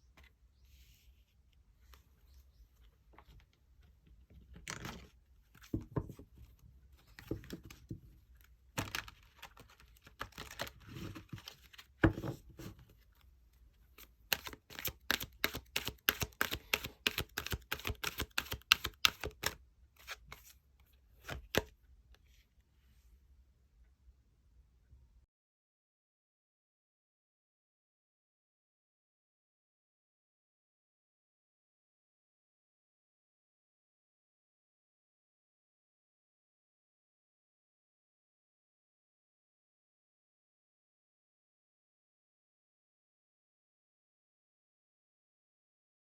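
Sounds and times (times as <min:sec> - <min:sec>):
cards rustling and knocking: 0:04.4 - 0:12.9, 0:14.0 - 0:20.6, 0:21.2 - 0:21.7.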